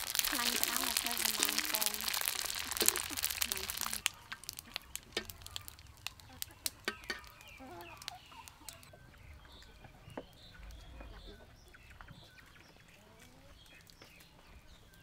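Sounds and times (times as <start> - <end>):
faint bird chirps and clucks: 4.1 - 15.0.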